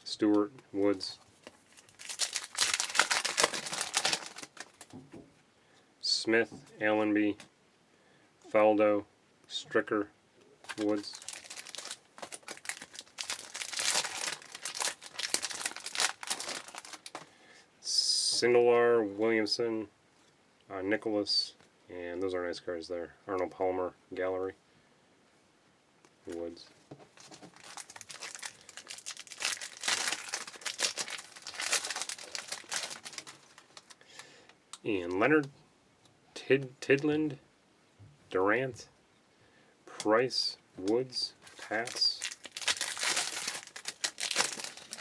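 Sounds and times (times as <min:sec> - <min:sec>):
wrapper crinkling and tearing: 0:01.4 - 0:04.9, 0:10.6 - 0:17.2, 0:27.2 - 0:34.0, 0:41.4 - 0:45.0
cards rustling and clicking: 0:01.4 - 0:05.0, 0:10.6 - 0:17.3.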